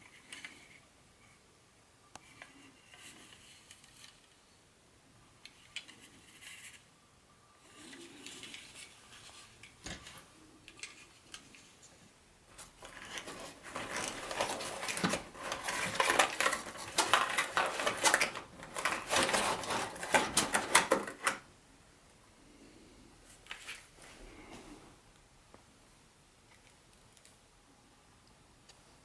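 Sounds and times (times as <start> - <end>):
soft rustle: 7.6 - 20.3, 23.2 - 25.0
model train parts clicking: 10.6 - 11.6.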